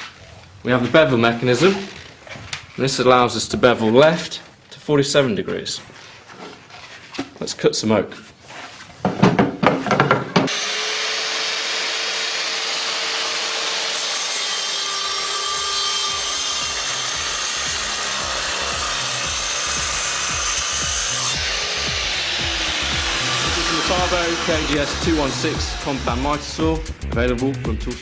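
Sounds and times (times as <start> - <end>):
miter saw cutting wood: 10.5 - 27.0.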